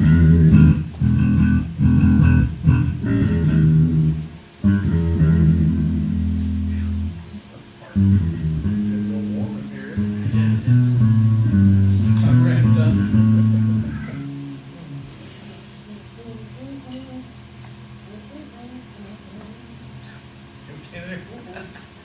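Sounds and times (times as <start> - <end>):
bass guitar plucked notes: 0.0 - 15.2.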